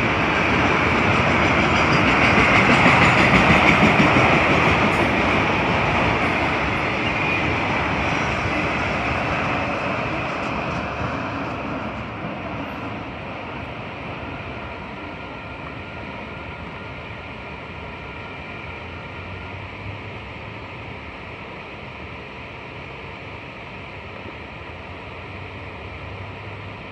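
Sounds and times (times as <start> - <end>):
freight train rumbling: 0.0 - 26.9.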